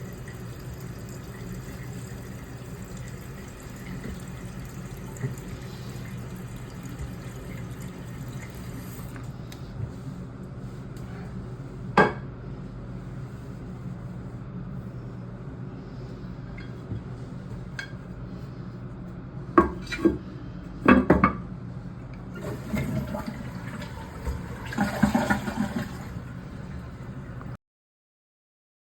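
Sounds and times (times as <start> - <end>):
toilet flushing: 0.0 - 9.4, 22.2 - 27.6
water running in toilet cistern: 0.0 - 9.4, 22.2 - 27.6.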